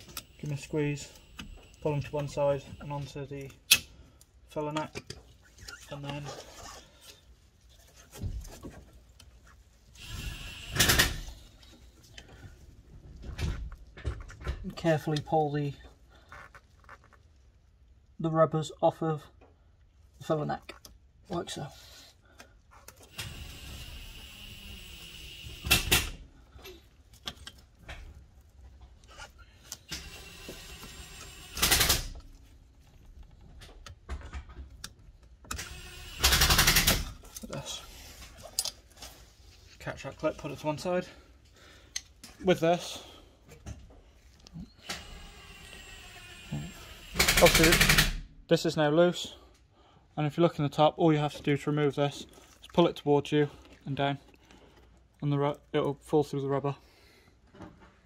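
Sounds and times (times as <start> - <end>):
metal parts clicking and knocking: 33.2 - 37.6
small power tool bursts: 35.6 - 36.9, 44.8 - 48.2.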